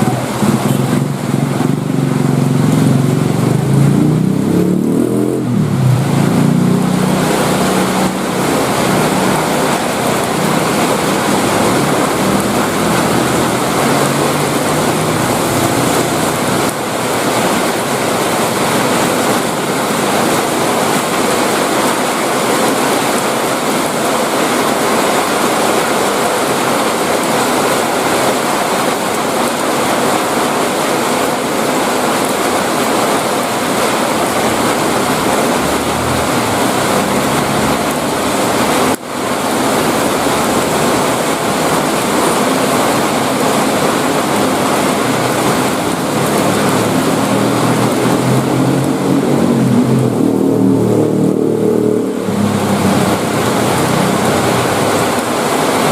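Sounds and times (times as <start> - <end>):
heavy rain pouring: 0.0 - 55.9
passing vehicle engine hum: 34.0 - 55.8.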